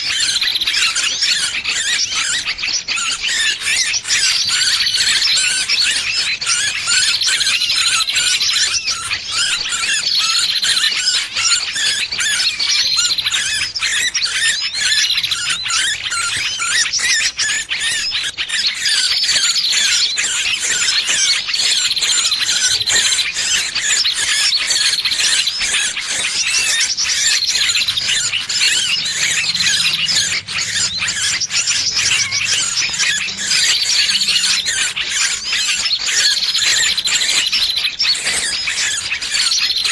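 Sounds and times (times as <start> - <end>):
small bird squealing in distress: 0.0 - 39.9.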